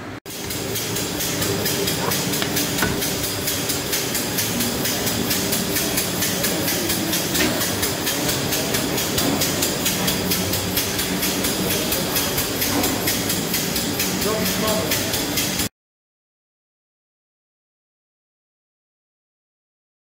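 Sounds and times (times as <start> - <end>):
machine motor hum: 0.0 - 15.7.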